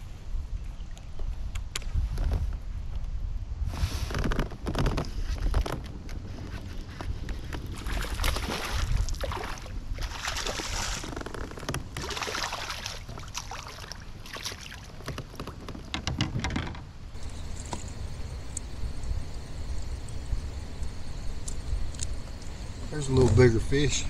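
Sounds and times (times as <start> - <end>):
wind rumble on microphone: 0.0 - 12.0, 14.9 - 24.0
water splashing against kayak hull: 7.4 - 16.6.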